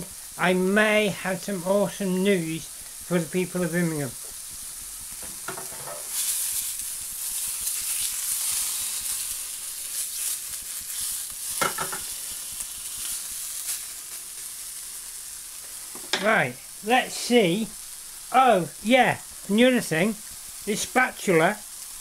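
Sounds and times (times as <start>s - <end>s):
burger patty sizzling in a pan: 0.0s - 22.0s.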